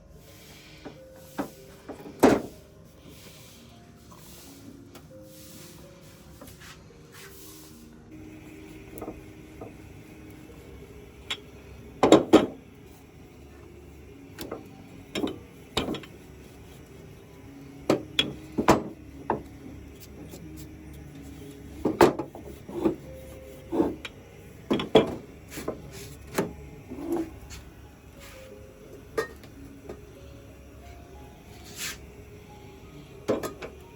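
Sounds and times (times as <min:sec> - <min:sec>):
objects knocking and clunking: 0:00.8 - 0:02.6, 0:09.0 - 0:09.9, 0:11.2 - 0:12.7, 0:14.4 - 0:16.2, 0:17.9 - 0:19.6, 0:21.7 - 0:23.1, 0:23.7 - 0:27.6, 0:33.2 - 0:33.8.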